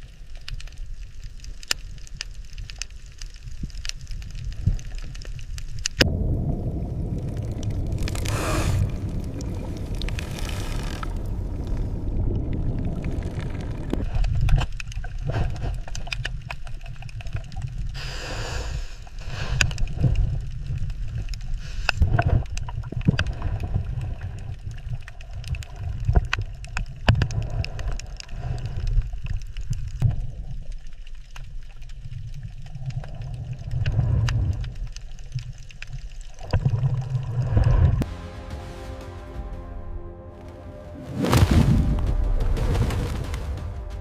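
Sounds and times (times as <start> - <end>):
underwater low rumble: 0.0 - 18.0, 19.0 - 44.0
water gurgling: 6.0 - 18.0
underwater clicks: 7.2 - 18.0, 19.5 - 38.0
rushing burst: 38.0 - 44.0.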